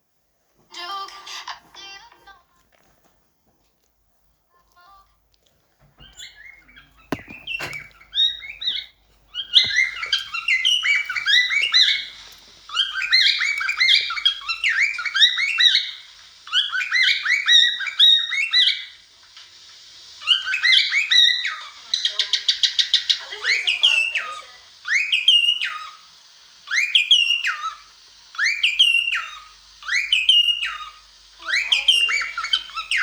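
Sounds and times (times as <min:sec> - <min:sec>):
cockatiel chirping and warbling: 0:06.0 - 0:19.0, 0:28.4 - 0:33.0.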